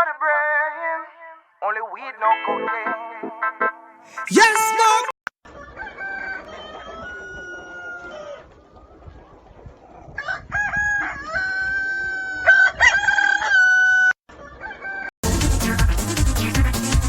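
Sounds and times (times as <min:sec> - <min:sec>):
rooster crowing: 0:05.6 - 0:08.4
electronic music with a beat: 0:15.2 - 0:17.0.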